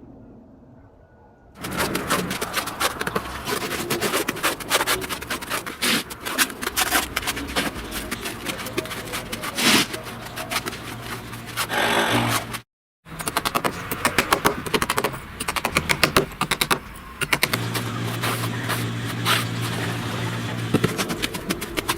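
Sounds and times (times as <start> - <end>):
construction knocking and scraping: 13.2 - 21.9.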